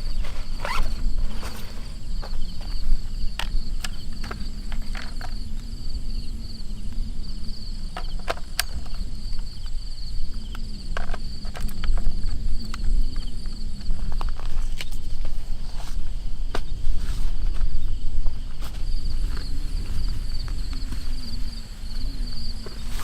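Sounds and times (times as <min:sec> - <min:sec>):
insects trilling: 0:00.0 - 0:23.0
sharp clicks and cracks: 0:10.3 - 0:15.0.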